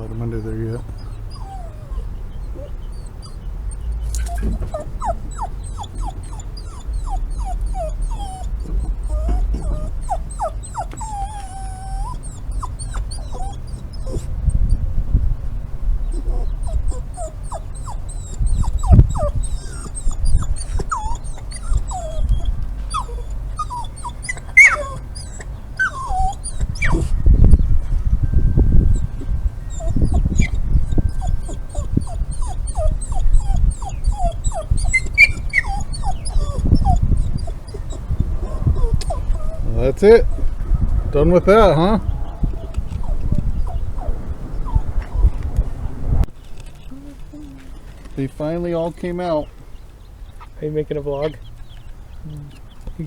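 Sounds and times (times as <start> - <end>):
dog whining: 0.2 - 14.8, 16.0 - 40.7, 41.5 - 45.6, 46.5 - 48.0
faint high chirping: 16.1 - 39.6.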